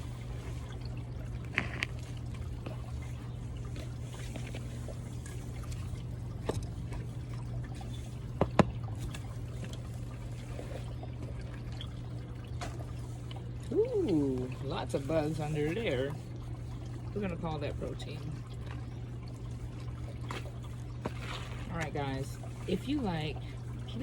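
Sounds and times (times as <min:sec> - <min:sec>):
steady low hum: 0:00.0 - 0:24.0
small knocks and scrapes: 0:01.4 - 0:02.8, 0:20.3 - 0:21.9
pots and soil being handled: 0:20.3 - 0:23.2.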